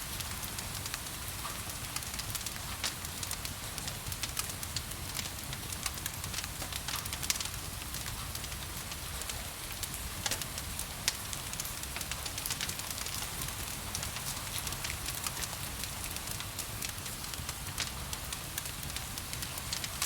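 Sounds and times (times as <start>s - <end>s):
gentle rain: 0.0s - 20.0s
wood fire crackling: 0.0s - 20.0s.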